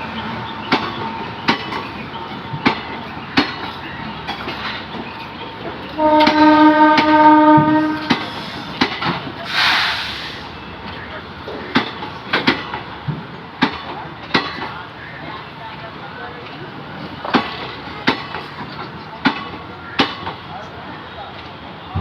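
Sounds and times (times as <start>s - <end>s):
train wheels clicking over rail joints: 0.1s - 15.2s, 16.4s - 22.0s
train horn blast: 6.0s - 8.6s
brief hiss: 9.5s - 10.6s.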